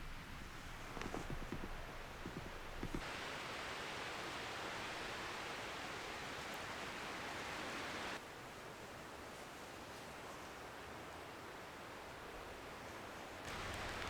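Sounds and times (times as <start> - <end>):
steady hissing: 13.5 - 14.0.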